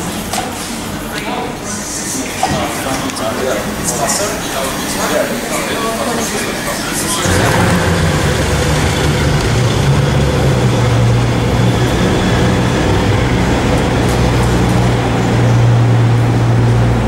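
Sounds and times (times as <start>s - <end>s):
car engine low drone: 7.2s - 17.0s.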